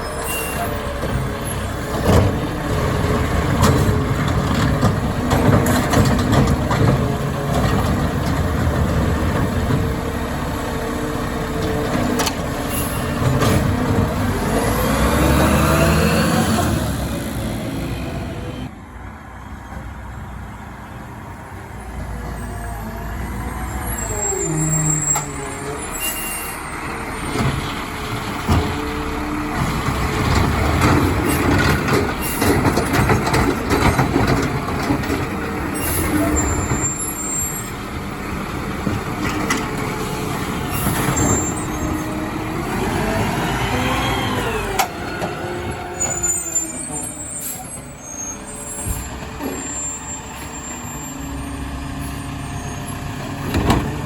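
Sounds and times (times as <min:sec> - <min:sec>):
garbage truck engine: 0:00.0 - 0:54.0
knocks and clanks: 0:01.0 - 0:10.1, 0:11.6 - 0:14.4, 0:27.2 - 0:37.0, 0:53.4 - 0:54.0.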